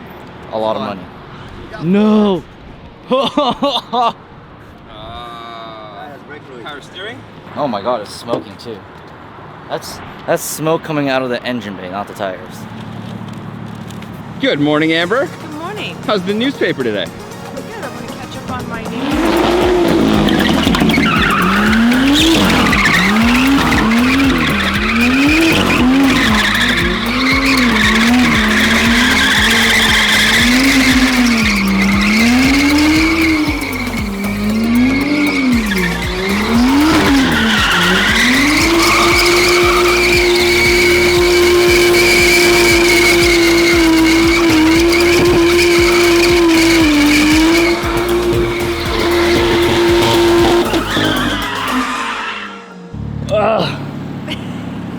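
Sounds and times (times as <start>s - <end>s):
tires squealing: 9.2s - 54.9s
car engine revving: 12.2s - 54.9s.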